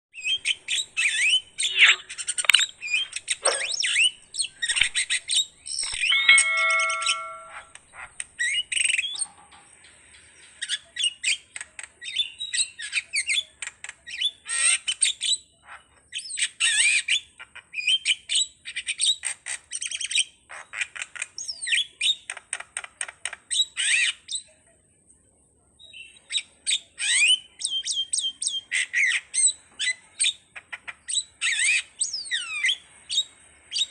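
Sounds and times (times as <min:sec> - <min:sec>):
starling singing chirps and whistles: 0:00.2 - 0:07.7
thin steady high whine: 0:05.8 - 0:07.7.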